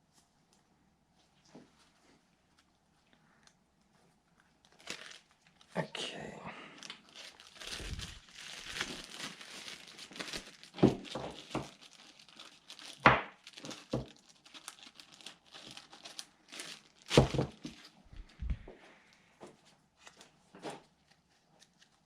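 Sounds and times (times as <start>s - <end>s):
plastic bag crinkling: 4.3s - 6.0s, 6.6s - 19.2s.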